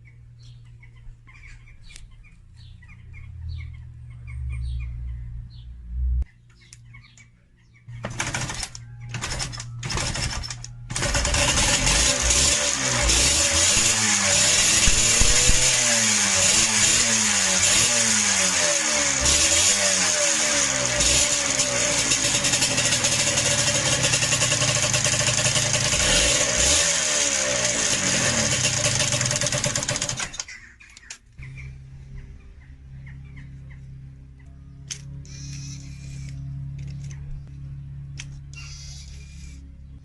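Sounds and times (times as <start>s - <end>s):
two-stroke engine revving: 8.0s - 30.5s.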